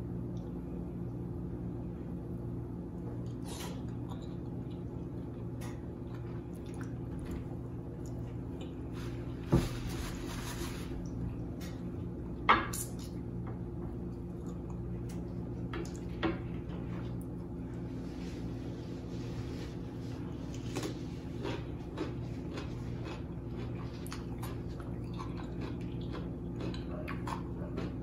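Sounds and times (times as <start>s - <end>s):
steady low hum: 0.0s - 28.0s
wet squishy chewing: 20.4s - 28.0s.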